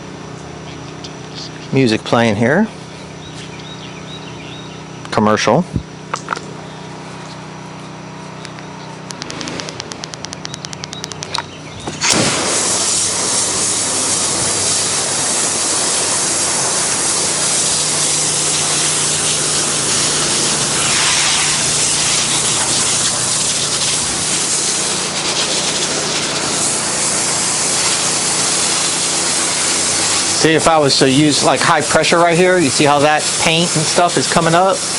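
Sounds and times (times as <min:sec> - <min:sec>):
pressure washer motor droning: 0:00.0 - 0:34.9
pressure washer spray hissing: 0:11.9 - 0:34.9.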